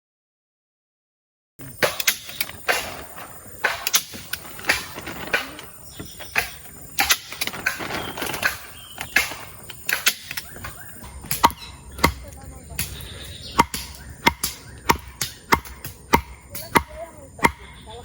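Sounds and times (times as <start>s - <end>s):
sharp knocks and clacks: 1.8s - 13.0s, 13.6s - 17.8s
rustling: 2.2s - 11.4s.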